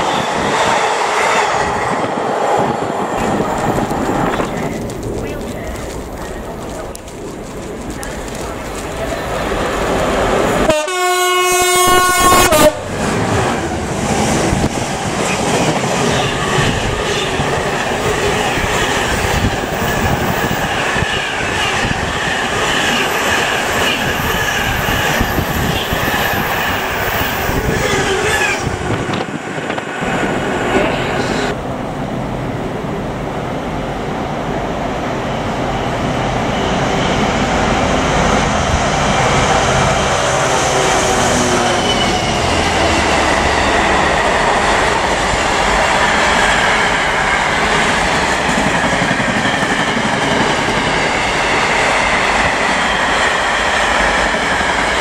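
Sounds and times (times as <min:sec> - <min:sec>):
train wheels on rail clattering: 0:03.2 - 0:10.7, 0:38.4 - 0:55.0
train horn blast: 0:10.6 - 0:12.9.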